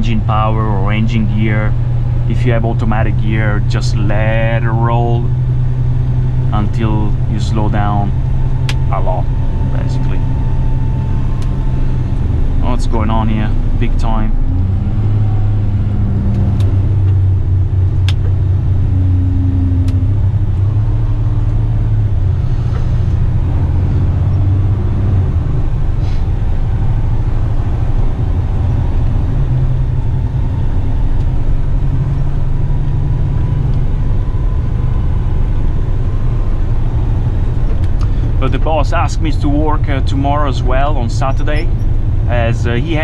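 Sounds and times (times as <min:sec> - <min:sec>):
road noise: 0:00.0 - 0:43.0
truck diesel engine running: 0:00.0 - 0:43.0.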